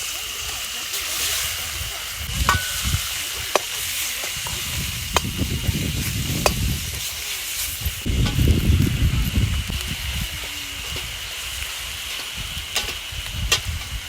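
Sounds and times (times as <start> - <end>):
food sizzling in a pan: 0.0 - 14.0
metal utensil clinking on pan: 2.4 - 5.5.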